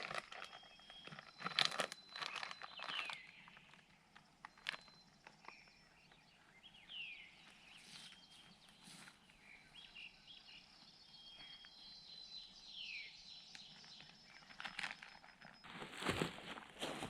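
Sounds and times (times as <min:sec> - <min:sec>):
crunching and rustling: 0:00.0 - 0:05.7, 0:13.8 - 0:17.0.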